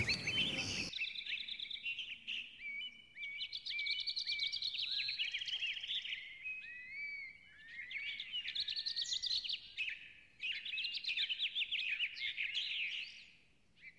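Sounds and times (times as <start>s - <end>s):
birds chirping: 0.0s - 0.9s.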